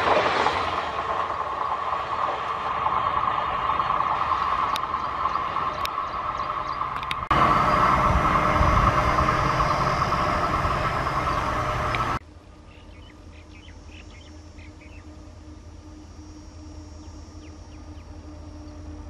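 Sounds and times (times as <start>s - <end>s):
diesel train rumbling: 0.0s - 19.0s
faint low hum: 4.7s - 19.0s
faint bird chirping: 9.0s - 19.0s.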